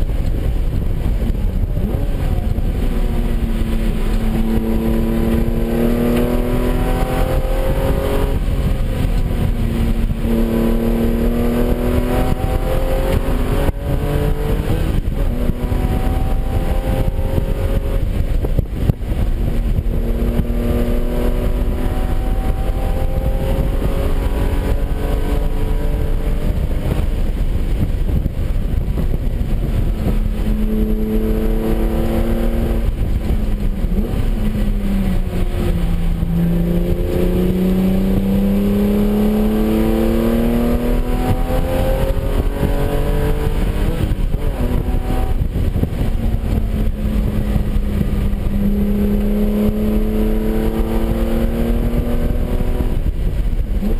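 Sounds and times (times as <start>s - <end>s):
car engine revving: 0.0s - 53.9s
road and wind noise: 0.0s - 53.9s.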